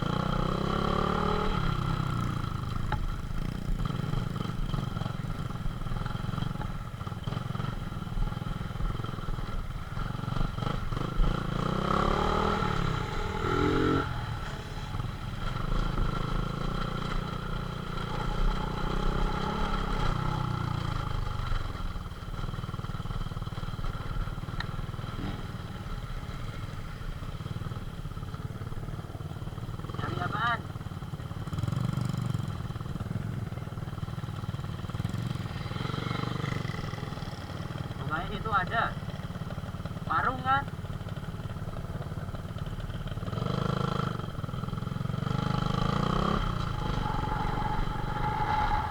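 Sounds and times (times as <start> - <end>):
motorcycle engines revving: 0.0 - 48.9
low rumble: 44.3 - 48.9.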